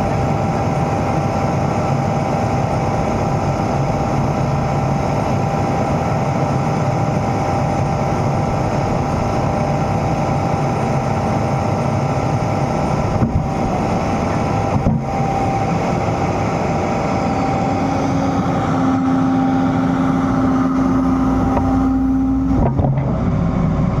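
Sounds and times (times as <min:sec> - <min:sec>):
excavator diesel engine running: 0:00.0 - 0:24.0
steady whine: 0:00.0 - 0:24.0.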